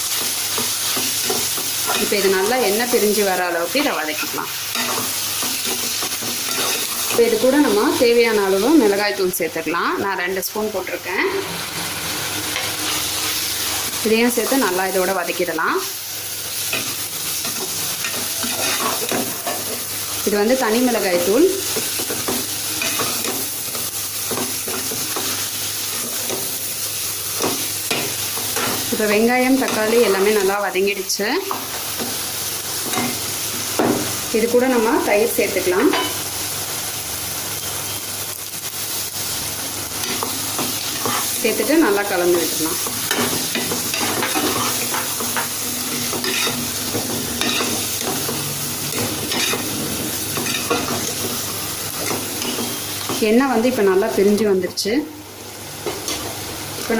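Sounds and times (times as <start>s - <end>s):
masala sizzling in hot oil: 0.0s - 56.9s
spoon scraping a pan: 3.8s - 7.8s, 16.7s - 20.0s, 21.6s - 26.7s, 40.0s - 41.4s, 42.4s - 53.2s.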